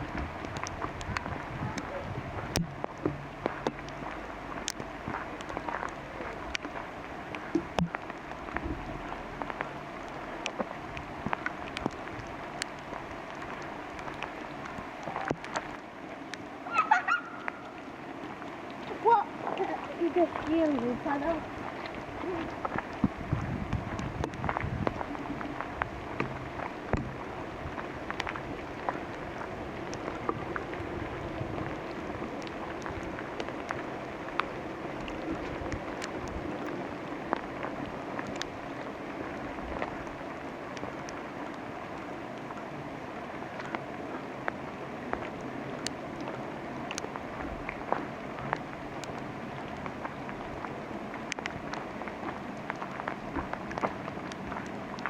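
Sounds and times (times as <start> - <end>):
soft low thumps: 0.0 - 6.8, 7.5 - 9.8
steady rain in forest: 0.0 - 55.0.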